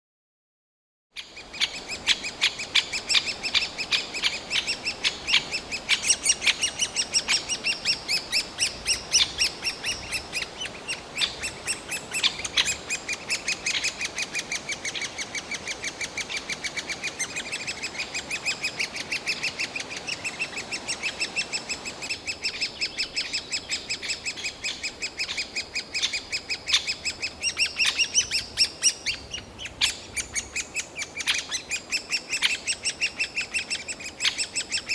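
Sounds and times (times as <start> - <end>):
woodpecker chicks shrieking: 1.2 - 34.9.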